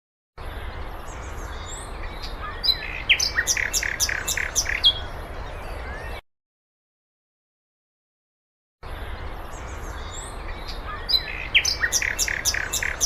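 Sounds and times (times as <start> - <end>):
finch singing: 0.5 - 6.2, 8.9 - 13.0.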